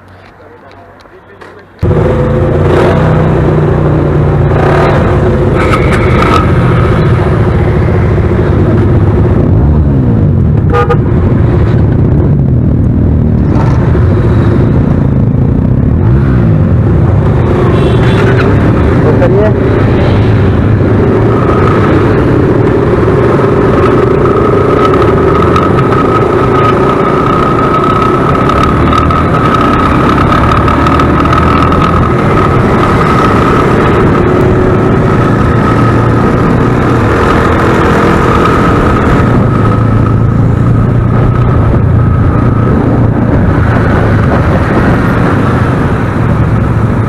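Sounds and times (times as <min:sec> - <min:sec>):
road and wind noise: 0:00.0 - 0:47.0
motorcycle engine running: 0:01.8 - 0:47.0.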